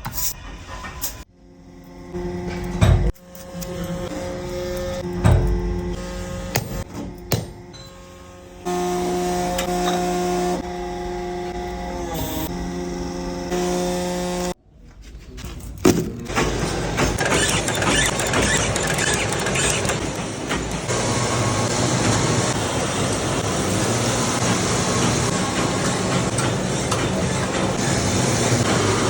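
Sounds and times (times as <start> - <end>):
machinery hum: 0.6 - 14.6
mechanical clatter: 15.8 - 20.9.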